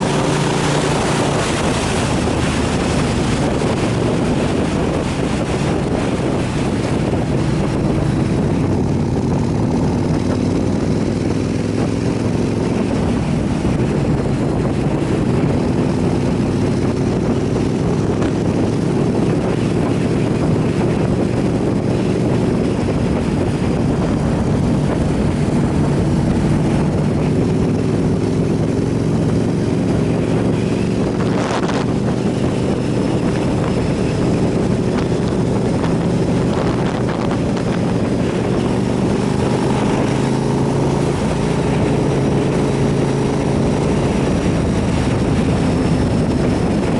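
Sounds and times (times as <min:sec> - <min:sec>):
motorcycle engine running: 0:00.0 - 0:46.9
wind noise on microphone: 0:00.0 - 0:46.9.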